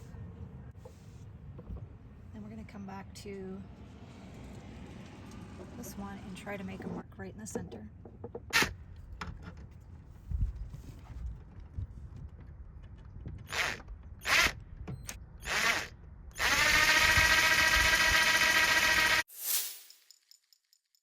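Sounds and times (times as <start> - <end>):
power drill running: 13.5 - 14.6, 15.4 - 19.3.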